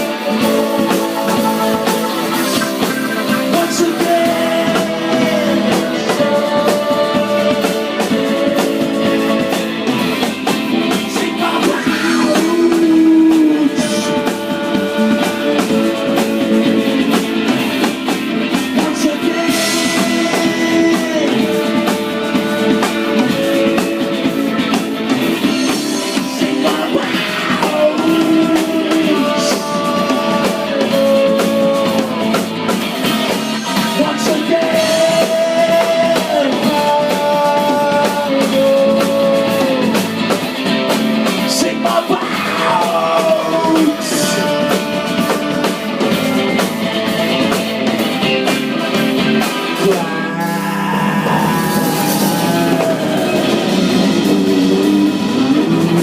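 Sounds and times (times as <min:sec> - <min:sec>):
sliding melody line: 0:00.0 - 0:06.0, 0:11.4 - 0:13.6
drum kit: 0:00.0 - 0:56.0
electric guitar: 0:00.0 - 0:56.0.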